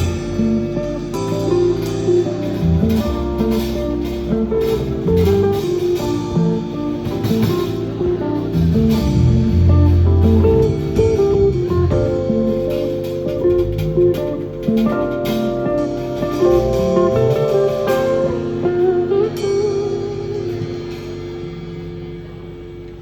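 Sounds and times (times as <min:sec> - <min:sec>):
bass line: 0:00.0 - 0:23.0
live band with guitar: 0:00.0 - 0:23.0.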